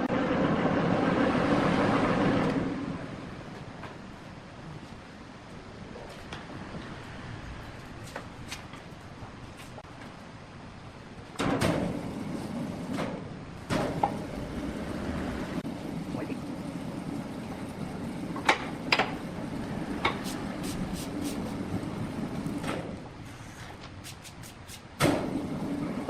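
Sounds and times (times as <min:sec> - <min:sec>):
sawmill machinery rumbling: 0:00.0 - 0:04.1, 0:11.6 - 0:26.0.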